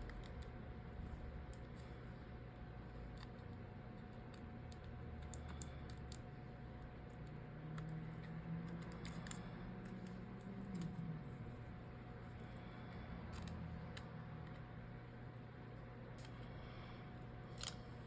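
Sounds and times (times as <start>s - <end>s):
clicks of small parts and tools: 17.5s - 17.8s.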